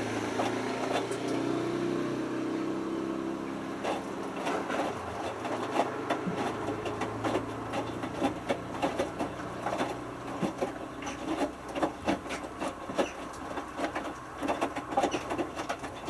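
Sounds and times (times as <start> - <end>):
washing machine motor hum: 0.0 - 16.0
water sloshing in drum: 3.0 - 16.0
load knocking in turning drum: 3.8 - 16.0.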